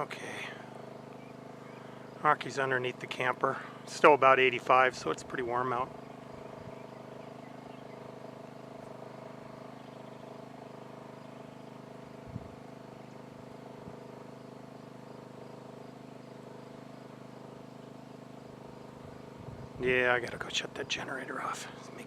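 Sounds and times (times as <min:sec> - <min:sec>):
portable generator humming: 0:00.0 - 0:22.0.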